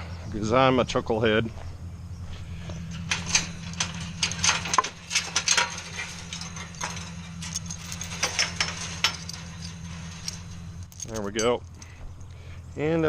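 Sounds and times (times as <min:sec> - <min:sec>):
tractor engine idling: 0:00.0 - 0:13.0
steel chain clinking: 0:02.8 - 0:12.6.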